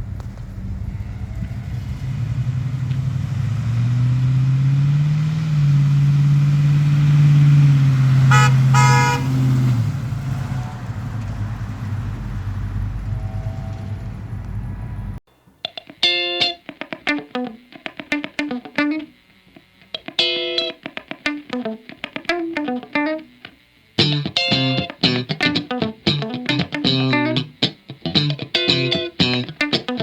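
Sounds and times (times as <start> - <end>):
pickup truck engine revving: 0.0 - 15.2
car horn toots: 8.1 - 9.8.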